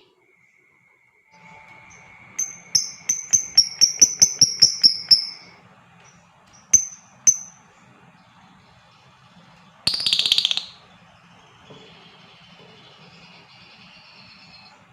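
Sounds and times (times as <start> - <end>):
faint high whistle-like tone: 0.0 - 5.6
bird chirping: 0.0 - 14.9.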